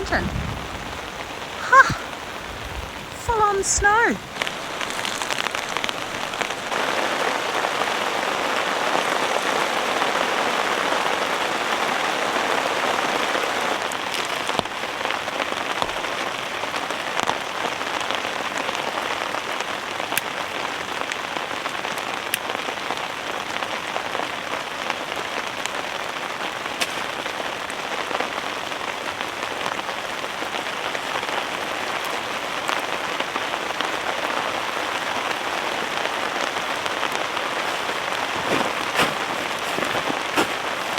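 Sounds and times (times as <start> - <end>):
heavy rain on fabric shelter: 0.0 - 40.9.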